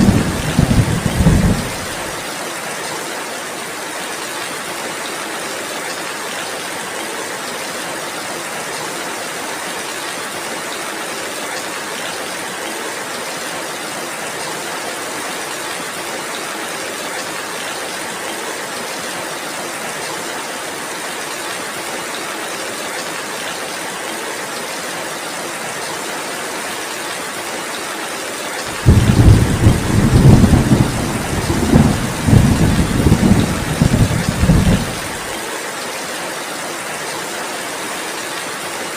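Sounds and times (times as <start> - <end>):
thunder rumbling: 0.0 - 2.2, 28.7 - 35.3
heavy rain falling: 0.0 - 38.9.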